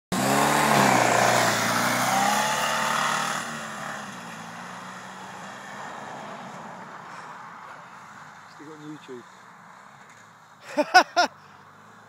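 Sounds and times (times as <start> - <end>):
buggy engine revving: 0.1 - 5.9.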